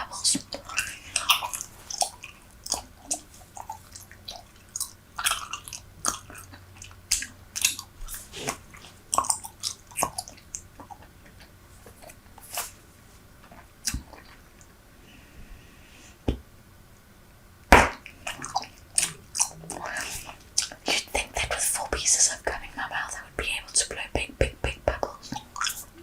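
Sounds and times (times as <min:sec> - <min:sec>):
bubble gum chewing: 0:00.2 - 0:12.7, 0:18.0 - 0:26.0.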